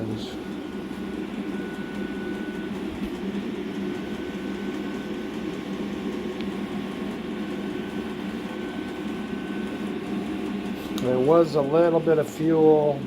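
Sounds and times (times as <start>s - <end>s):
air heater rushing: 0.0s - 13.0s
high-pitched fan whine: 0.0s - 13.0s.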